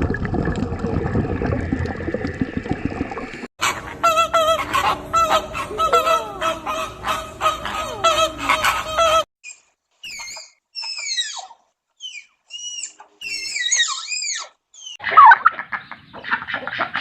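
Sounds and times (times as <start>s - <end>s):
geese honking: 3.6s - 9.2s.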